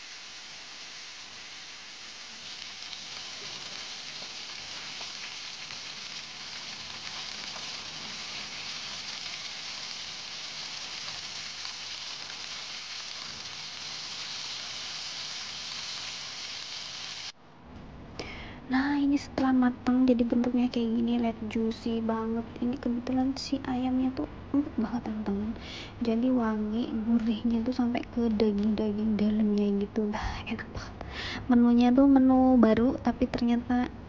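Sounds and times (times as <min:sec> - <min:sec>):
chicken sizzling in hot oil: 0:00.0 - 0:17.4.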